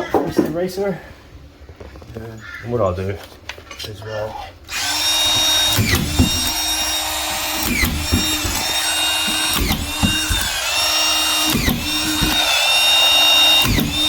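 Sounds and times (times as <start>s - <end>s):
screw gun motor whine: 4.7s - 14.0s.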